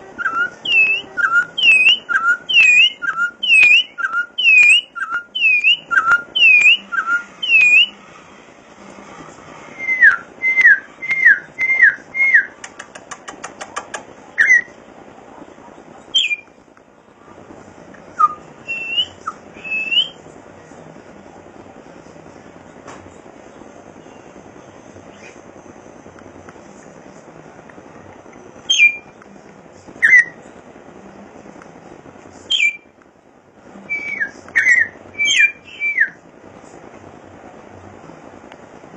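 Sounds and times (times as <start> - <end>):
bird whistling song: 0.1 - 8.0, 9.7 - 12.9, 14.4 - 14.8, 16.1 - 16.6, 18.2 - 20.2, 25.1 - 25.4, 28.6 - 29.2, 30.0 - 30.4, 32.5 - 32.9, 33.9 - 36.2.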